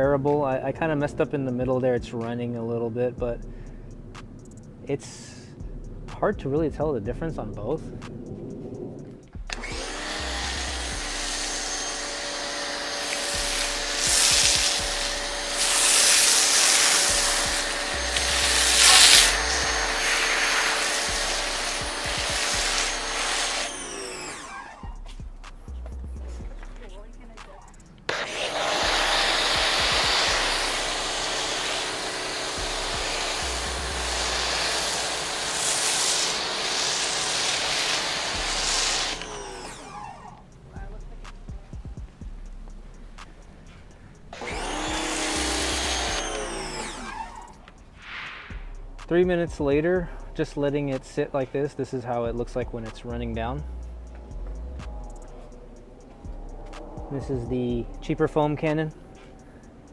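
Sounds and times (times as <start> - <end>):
pressure washer motor running: 9.4 - 43.8, 44.4 - 47.7
water jet hissing: 9.5 - 25.8, 26.4 - 49.2.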